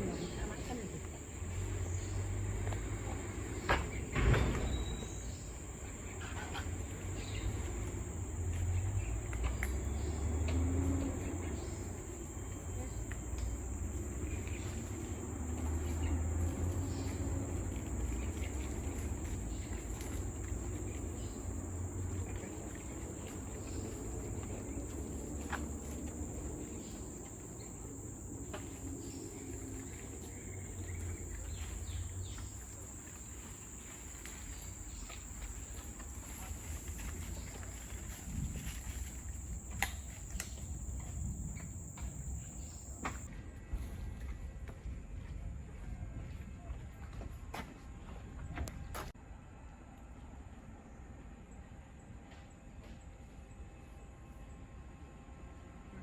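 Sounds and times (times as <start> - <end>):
insects droning: 0.0 - 43.3.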